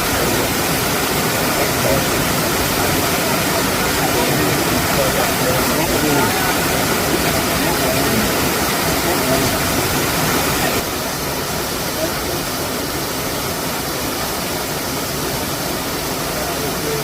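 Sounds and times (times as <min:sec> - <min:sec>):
faint voices talking: 0:00.0 - 0:14.4, 0:16.2 - 0:17.0
waterfall roaring: 0:00.0 - 0:17.0.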